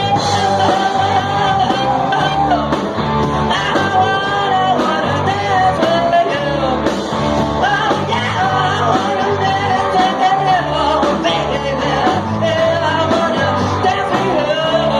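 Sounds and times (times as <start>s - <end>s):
person singing: 0.0s - 14.9s
rock band playing: 0.0s - 14.9s.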